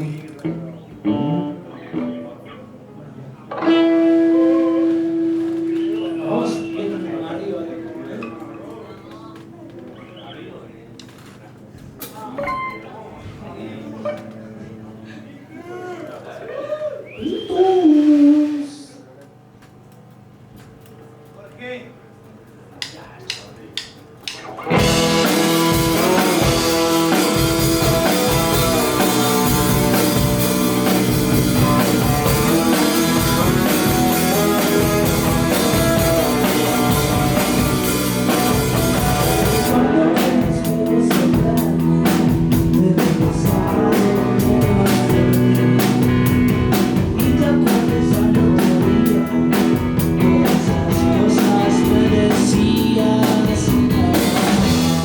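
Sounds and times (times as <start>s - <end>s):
rock band playing live: 0.0s - 2.3s, 3.5s - 10.1s, 24.1s - 55.0s.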